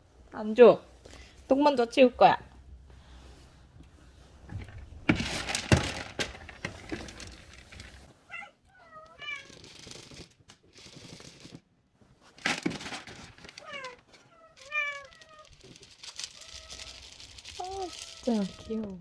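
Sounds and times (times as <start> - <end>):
cat meowing: 8.3 - 9.6, 13.6 - 15.6, 16.3 - 19.0.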